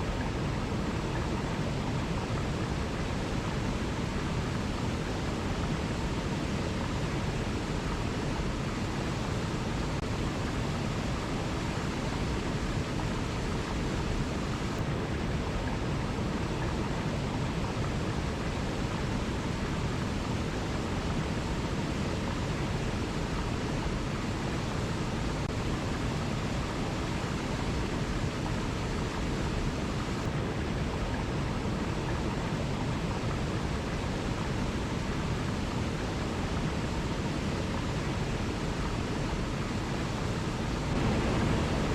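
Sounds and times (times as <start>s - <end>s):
waterfall rushing: 22.8s - 41.9s.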